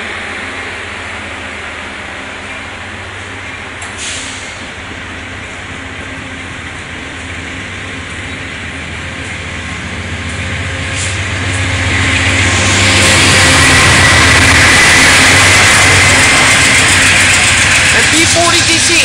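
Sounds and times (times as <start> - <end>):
diesel locomotive engine: 0.0 - 19.0
train cars rolling past: 0.0 - 19.0.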